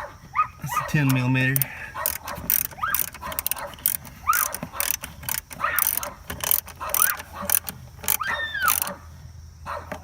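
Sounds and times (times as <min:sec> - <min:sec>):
socket ratchet clicking: 0:01.0 - 0:09.0
short squeaky chirps: 0:02.0 - 0:09.0.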